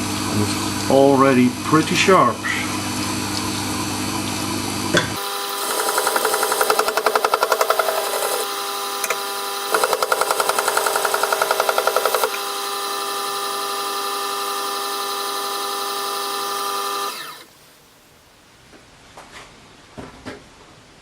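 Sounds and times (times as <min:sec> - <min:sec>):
electric motor humming: 0:05.2 - 0:17.6.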